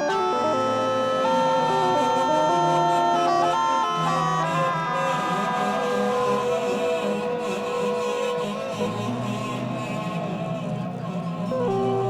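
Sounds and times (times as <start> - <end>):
ensemble held tones: 0.0 - 4.5.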